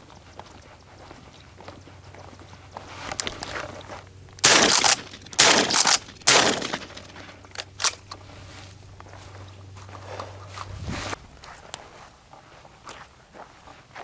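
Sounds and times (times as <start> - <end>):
sharp clicks: 4.3 - 8.2
shotgun shots: 4.4 - 8.0.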